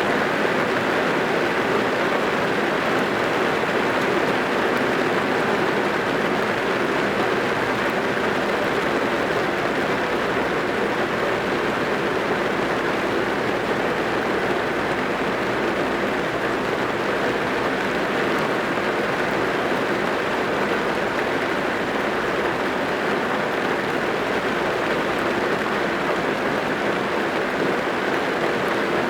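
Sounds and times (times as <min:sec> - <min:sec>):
rain drumming on car roof: 0:00.2 - 0:29.0.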